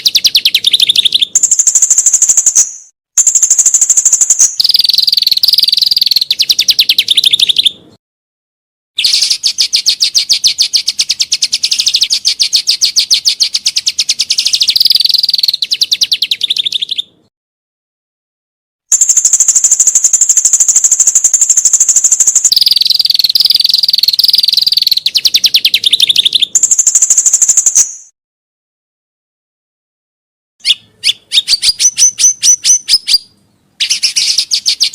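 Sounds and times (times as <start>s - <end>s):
songbird trilling: 0.0s - 7.8s, 9.0s - 17.2s, 18.9s - 28.1s, 30.6s - 34.9s.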